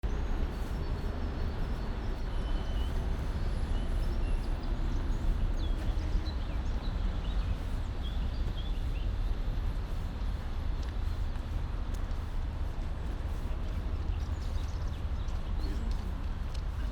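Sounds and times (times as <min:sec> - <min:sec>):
distant city traffic rumble: 0:00.0 - 0:16.9
small birds chirping: 0:00.0 - 0:16.9.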